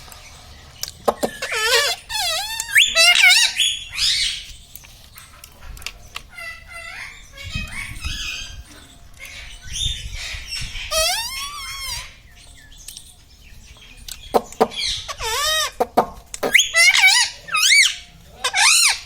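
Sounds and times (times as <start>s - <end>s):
parrot squawking: 1.2s - 4.5s, 6.3s - 12.3s, 14.7s - 15.8s, 16.4s - 19.0s
parrot warbling call: 1.3s - 4.5s, 10.2s - 12.2s, 16.4s - 19.0s.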